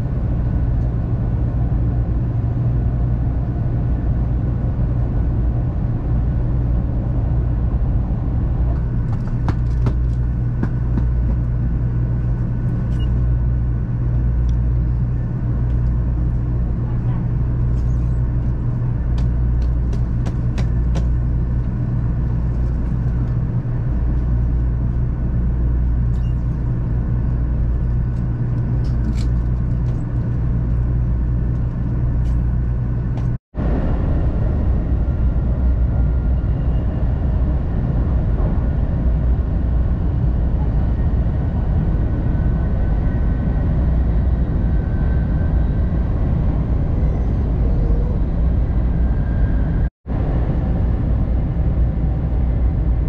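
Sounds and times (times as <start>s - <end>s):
train rumble at speed: 0.0s - 53.0s.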